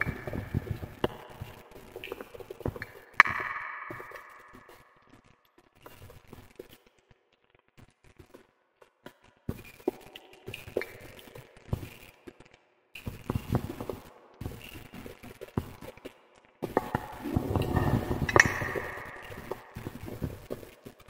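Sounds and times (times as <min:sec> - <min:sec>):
wood fire crackling: 0:00.0 - 0:04.8, 0:09.7 - 0:21.0.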